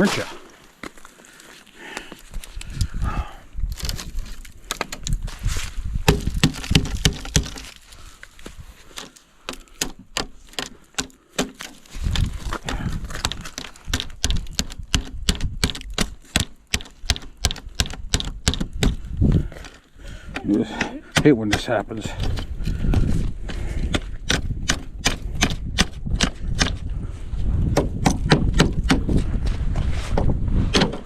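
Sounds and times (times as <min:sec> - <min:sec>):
icy snow crunching underfoot: 0:11.6 - 0:13.9.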